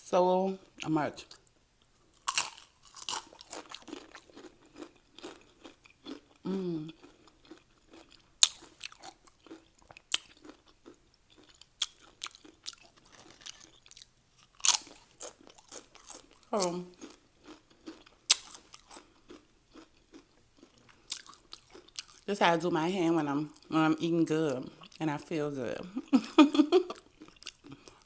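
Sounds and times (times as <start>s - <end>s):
chips crunching and chewing: 2.1s - 22.3s, 26.9s - 28.0s.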